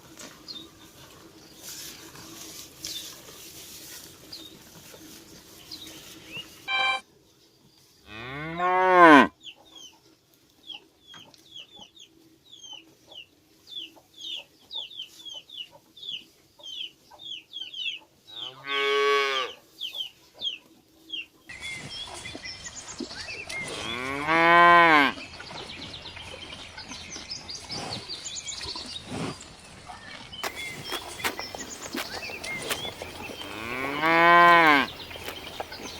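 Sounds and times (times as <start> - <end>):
short high chirps: 6.7 - 7.0
cows mooing: 8.1 - 9.3, 23.7 - 25.2, 30.4 - 35.9.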